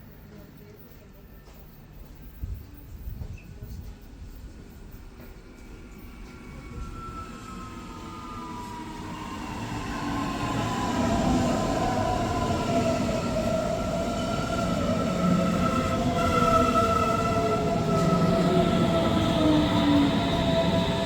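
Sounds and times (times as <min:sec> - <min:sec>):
electric train approaching: 0:04.7 - 0:21.0.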